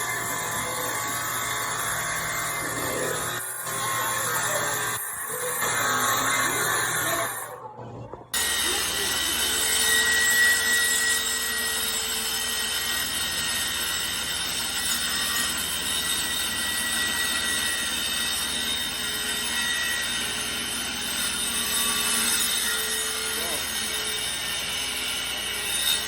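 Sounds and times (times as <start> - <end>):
circular saw cutting wood: 0.0 - 7.6, 8.3 - 26.0.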